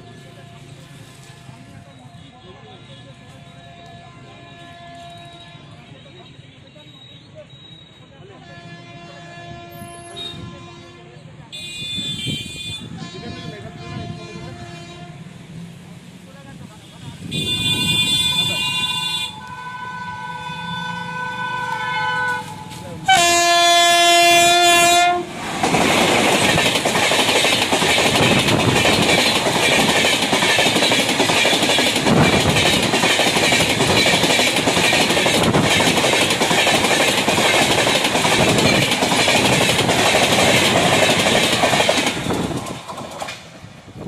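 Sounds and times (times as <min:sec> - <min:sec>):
locomotive horn: 0:02.9 - 0:06.0, 0:08.3 - 0:15.4, 0:17.2 - 0:25.4
train rushing past: 0:12.2 - 0:44.0.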